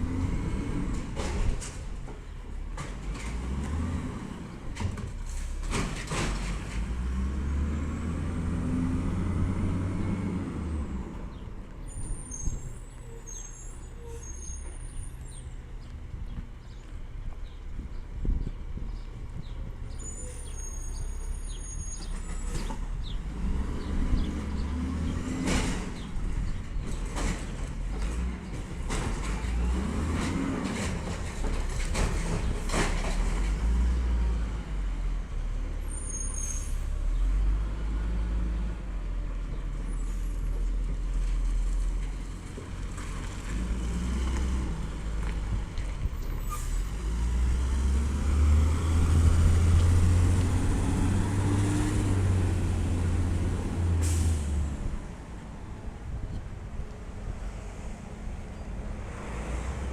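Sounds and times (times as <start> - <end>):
short high squeals: 11.9 - 15.5, 20.0 - 22.6, 35.9 - 36.8.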